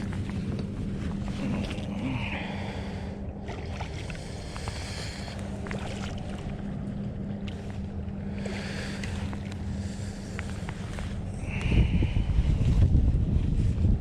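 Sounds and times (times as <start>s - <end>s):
steady low hum: 0.0s - 14.0s
wind buffeting microphone: 8.4s - 14.0s.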